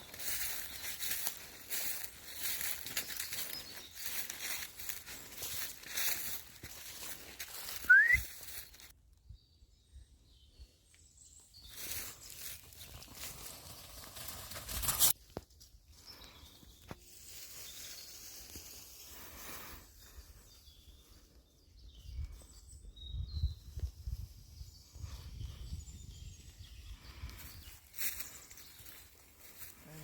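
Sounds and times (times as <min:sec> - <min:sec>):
footsteps: 0:00.0 - 0:08.6
wind rumble on microphone: 0:21.8 - 0:27.7.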